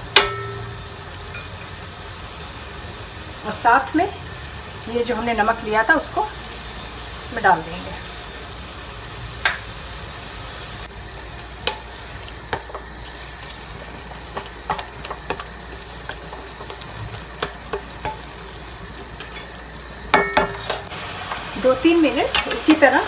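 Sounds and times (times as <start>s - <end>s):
chicken frying sizzle: 0.0s - 23.0s
metal spoon scraping pan: 12.5s - 20.9s.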